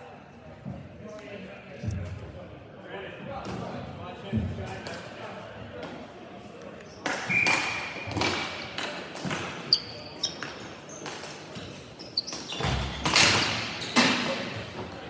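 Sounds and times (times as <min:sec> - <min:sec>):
shoe squeaks: 0:09.6 - 0:14.1
knocks of sticks ball and boards: 0:12.4 - 0:14.5.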